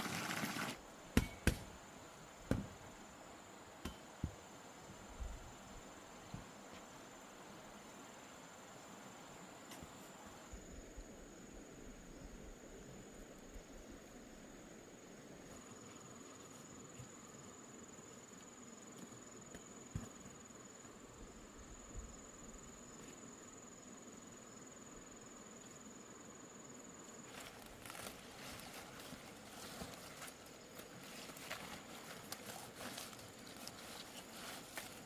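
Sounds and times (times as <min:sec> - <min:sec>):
rustling: 0:27.2 - 0:35.0.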